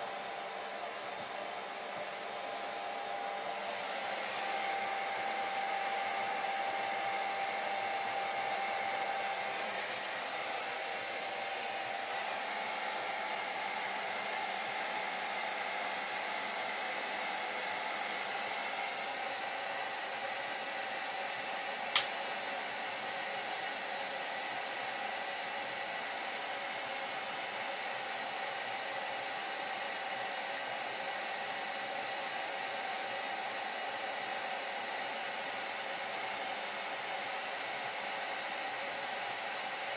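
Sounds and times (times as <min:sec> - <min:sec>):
hair dryer running: 0:00.0 - 0:39.9
sharp click: 0:21.9 - 0:22.2.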